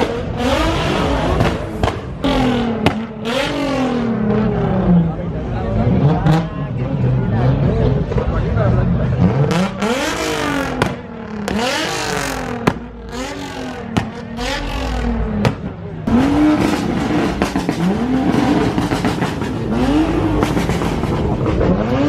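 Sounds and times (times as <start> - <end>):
car engines revving: 0.0 - 22.0
exhaust pops and bangs: 1.3 - 3.1, 10.7 - 11.6, 12.5 - 12.9, 13.8 - 14.4, 15.3 - 15.8, 16.4 - 21.7.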